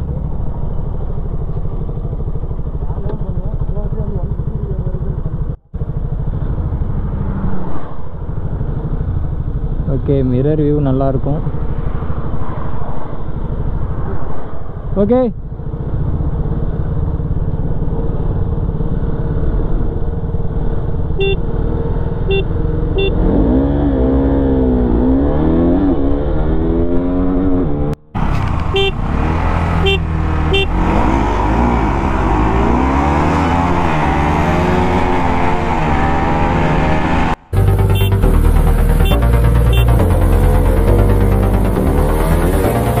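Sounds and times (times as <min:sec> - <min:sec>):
motorcycle engine revving: 0:00.0 - 0:43.0
short beeps: 0:21.2 - 0:21.4, 0:28.8 - 0:29.0, 0:37.7 - 0:38.3.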